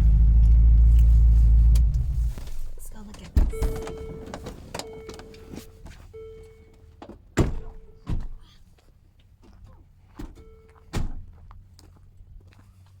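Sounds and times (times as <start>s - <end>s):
car warning chime beeping: 3.5s - 7.0s, 7.6s - 8.1s, 10.4s - 11.0s
car door slamming: 7.4s - 8.4s.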